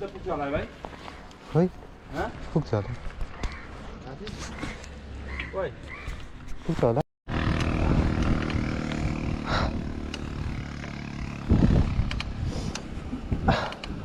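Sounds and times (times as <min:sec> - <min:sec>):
vehicle engine humming: 0:07.3 - 0:14.0
wind buffeting microphone: 0:07.4 - 0:14.0.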